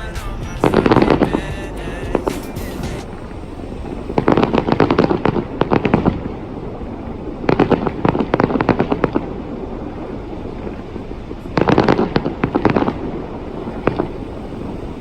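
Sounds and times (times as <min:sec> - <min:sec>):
fireworks crackling pops: 0:07.4 - 0:09.3, 0:11.5 - 0:14.2.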